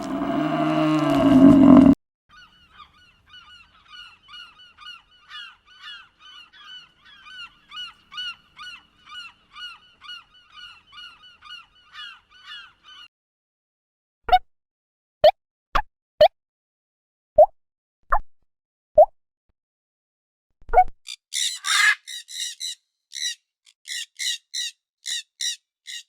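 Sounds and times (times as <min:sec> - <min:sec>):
loud low animal call: 0:00.0 - 0:02.0
bird short high calls: 0:21.1 - 0:26.0.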